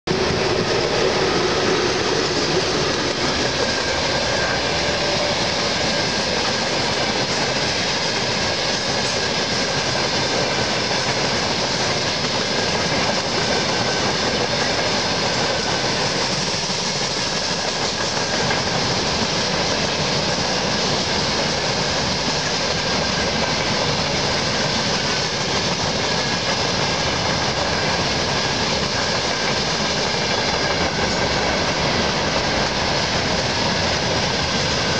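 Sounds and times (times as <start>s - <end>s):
locomotive humming tone: 0.1s - 34.9s.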